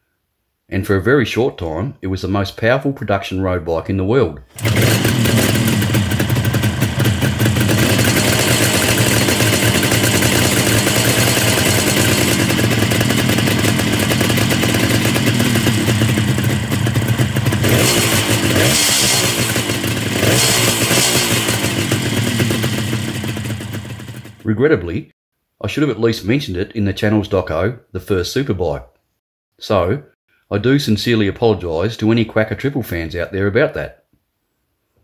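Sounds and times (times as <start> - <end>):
two-stroke motorcycle engine revving: 4.5 - 24.4.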